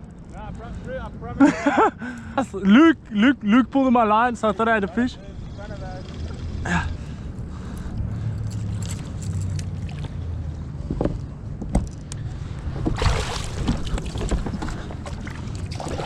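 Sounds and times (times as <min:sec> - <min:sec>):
water sloshing around kayak: 0:12.6 - 0:16.0
rush of water: 0:12.8 - 0:16.0.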